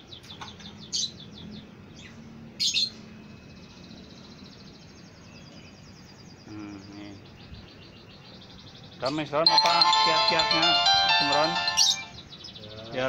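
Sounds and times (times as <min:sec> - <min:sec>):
lovebirds calling sharply: 0:00.0 - 0:09.4
high bird trill: 0:09.5 - 0:12.4.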